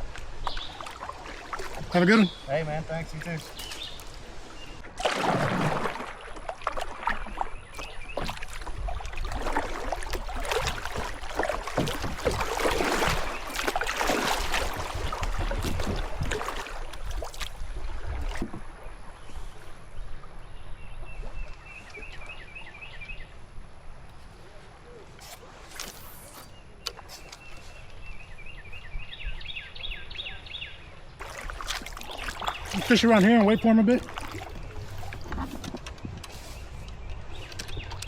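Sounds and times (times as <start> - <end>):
paddle splashing in water: 0.0 - 23.2, 31.0 - 38.0.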